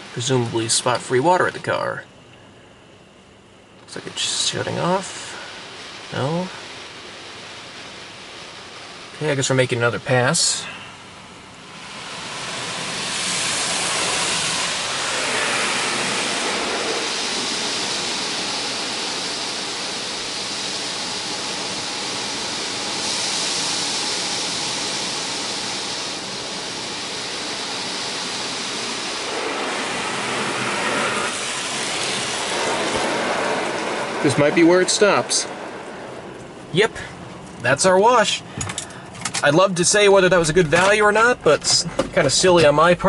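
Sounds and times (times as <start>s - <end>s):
water spray hissing on car: 3.8s - 43.0s.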